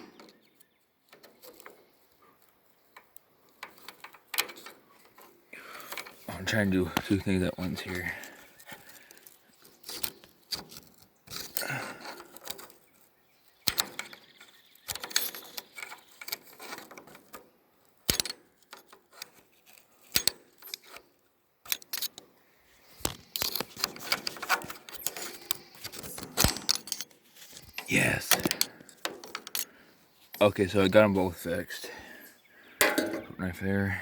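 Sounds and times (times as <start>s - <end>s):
twine rustling: 20.7s - 31.4s.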